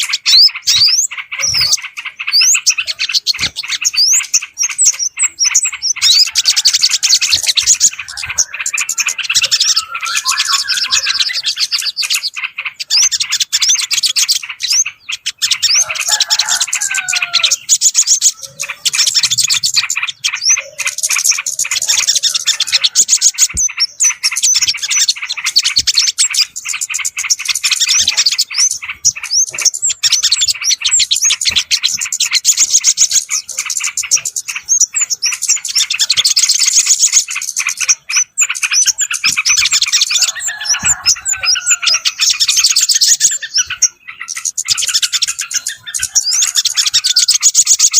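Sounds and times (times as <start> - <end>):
low whistled bird phrases: 0.0 - 12.3
small birds chirping and twittering: 0.0 - 47.9.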